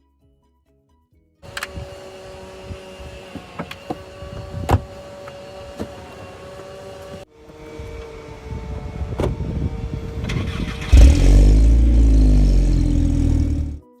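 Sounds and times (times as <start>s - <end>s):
car engine revving: 1.4s - 13.8s
car starter cranking: 10.2s - 13.8s.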